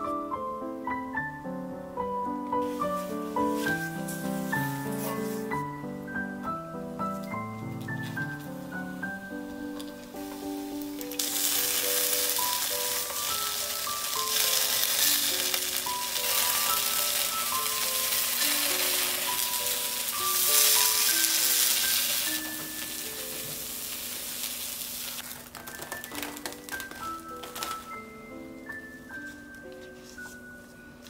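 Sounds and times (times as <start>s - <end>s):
light plucked background music: 0.0s - 24.4s, 25.4s - 31.0s
chopsticks turning food in pan: 9.8s - 25.8s
tofu sizzling in hot oil: 10.8s - 25.2s.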